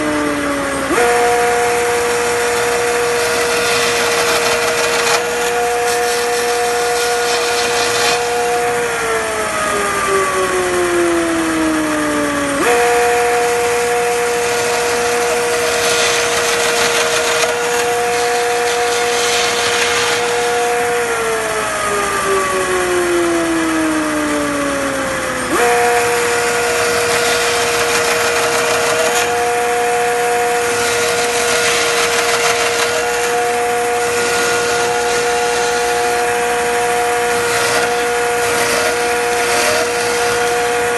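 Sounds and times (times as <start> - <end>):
electric motor whining: 0.0 - 40.9.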